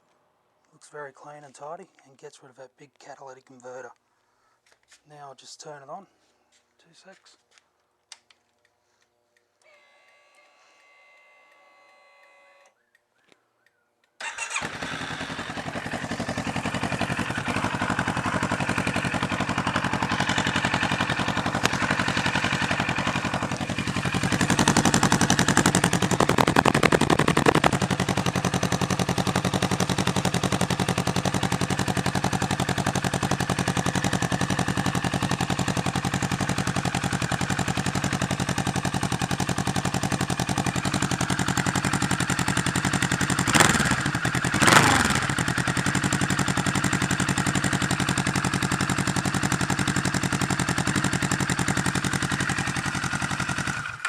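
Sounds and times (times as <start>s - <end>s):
motorcycle engine starting and idling: 14.2s - 54.0s.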